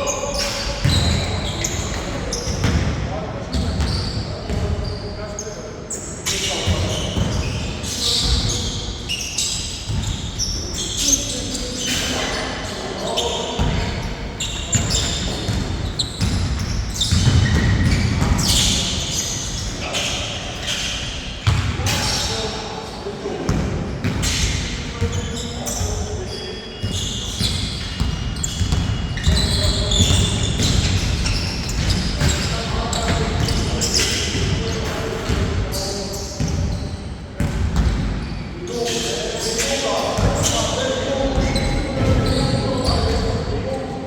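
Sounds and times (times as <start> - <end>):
sneakers squeaking on floor: 0.0 - 44.0
basketball bouncing on court: 0.8 - 4.7, 9.9 - 10.2, 13.6 - 18.9, 21.4 - 21.8, 26.8 - 35.7, 36.4 - 38.4.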